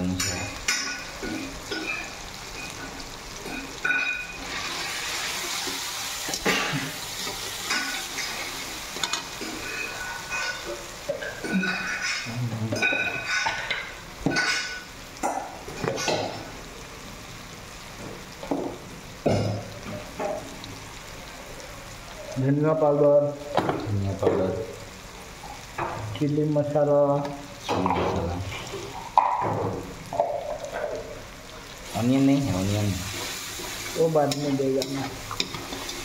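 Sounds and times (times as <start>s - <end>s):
sauce sizzling in a pan: 0.0s - 36.0s
spoon scraping and clinking pan: 7.2s - 14.9s.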